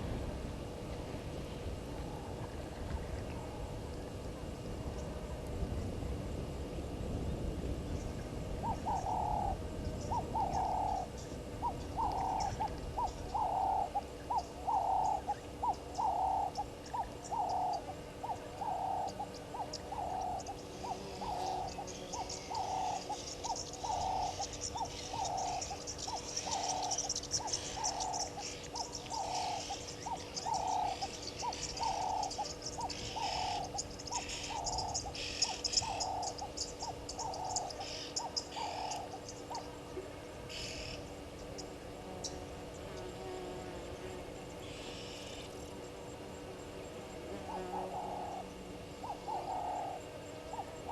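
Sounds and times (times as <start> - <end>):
animal calling in low notes: 8.6 - 36.5, 47.3 - 50.9
high insect chirring: 8.6 - 39.8.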